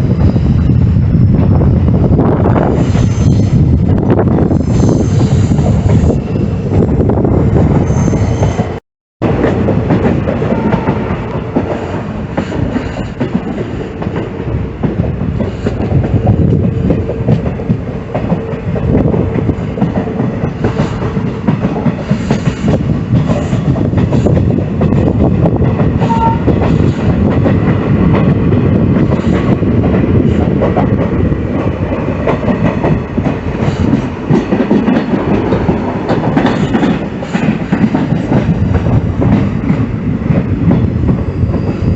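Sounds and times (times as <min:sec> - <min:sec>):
train wheels clattering on rails: 0:00.0 - 0:41.9.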